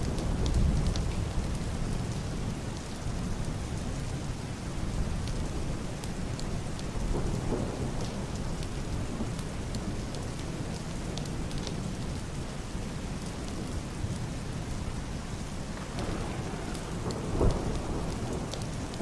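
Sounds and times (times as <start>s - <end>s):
heavy rain on a roof: 0.0s - 19.0s
raindrops ticking: 15.7s - 19.0s
distant thunder rumble: 15.8s - 19.0s.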